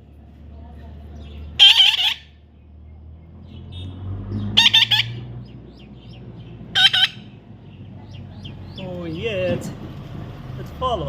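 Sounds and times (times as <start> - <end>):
parrot squawking: 1.6 - 2.4, 4.5 - 5.3, 6.7 - 7.4.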